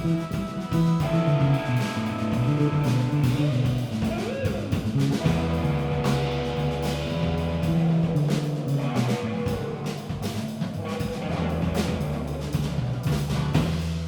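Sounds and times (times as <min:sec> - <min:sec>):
live band playing: 0:00.0 - 0:14.0
drum hits: 0:11.2 - 0:14.0.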